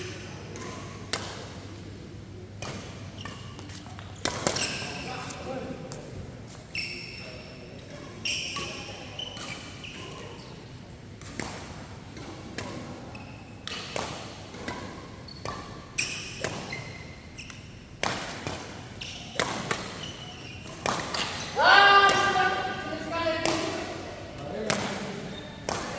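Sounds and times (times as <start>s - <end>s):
rackets smacking shuttlecock: 0.1s - 1.5s, 2.6s - 6.0s, 13.6s - 16.8s, 17.4s - 25.9s
shoes squeaking on court: 2.6s - 10.6s, 11.3s - 23.9s, 24.7s - 25.9s.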